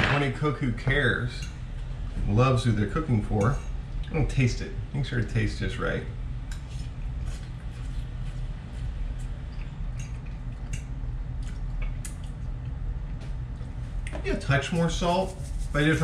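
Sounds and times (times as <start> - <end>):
steady low hum: 0.0 - 16.0
person chewing: 6.5 - 12.8.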